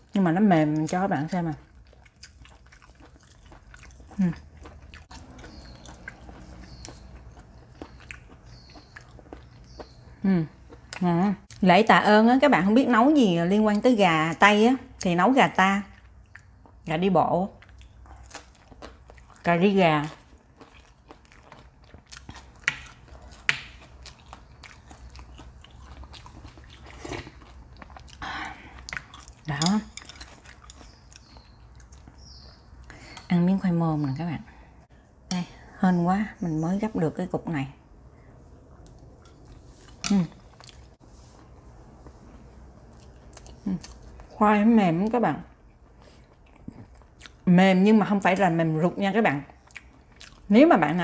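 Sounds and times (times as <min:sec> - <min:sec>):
person chewing: 0:01.6 - 0:11.6, 0:17.6 - 0:33.3, 0:38.8 - 0:44.4, 0:45.5 - 0:47.4, 0:49.6 - 0:50.5.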